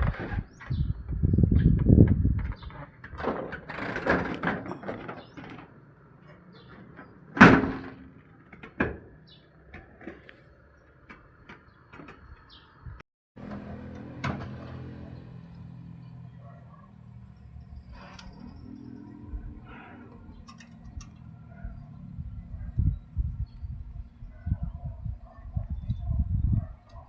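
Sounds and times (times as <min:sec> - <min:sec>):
knocks and scraping on roof gutter: 0:00.0 - 0:10.4, 0:11.0 - 0:12.6.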